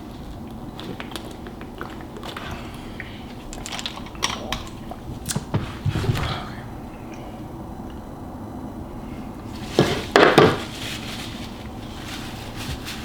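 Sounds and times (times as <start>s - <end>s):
close chewing of noodles: 0.2s - 4.6s.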